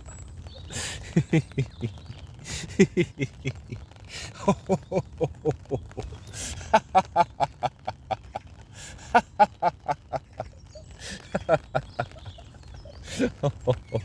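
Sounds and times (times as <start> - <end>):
man laughing rhythmically: 0.7 - 14.0.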